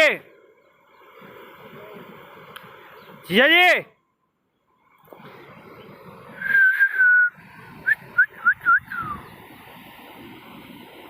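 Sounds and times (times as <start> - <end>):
waterfall rushing: 5.2 - 11.0
person whistling: 6.4 - 9.2.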